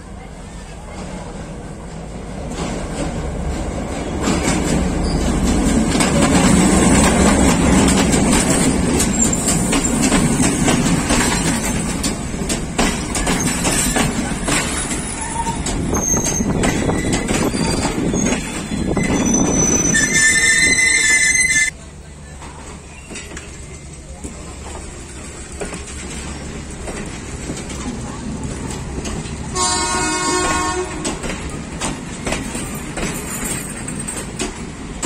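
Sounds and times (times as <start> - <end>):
diesel locomotive pulling in: 0.0 - 35.0
train wheels rumbling on rails: 0.0 - 35.0
high wheel squeals: 14.7 - 21.7.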